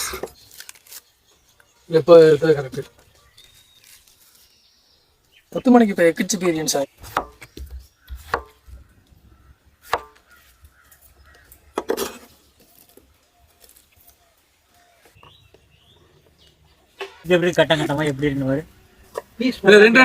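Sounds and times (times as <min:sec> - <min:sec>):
knife chopping fruit: 0:06.4 - 0:08.8, 0:09.8 - 0:10.3.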